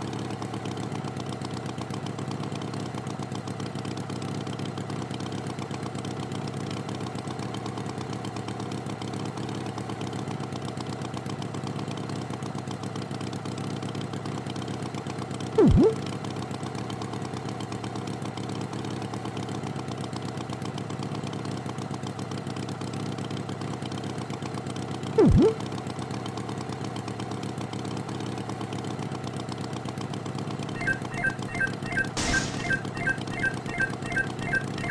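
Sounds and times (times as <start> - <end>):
loud thump dropping in pitch: 15.6 - 16.0, 30.8 - 34.9.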